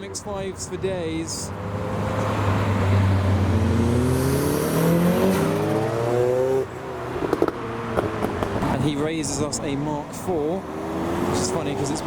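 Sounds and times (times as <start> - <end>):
car engine accelerating: 1.5 - 9.0, 10.4 - 12.0.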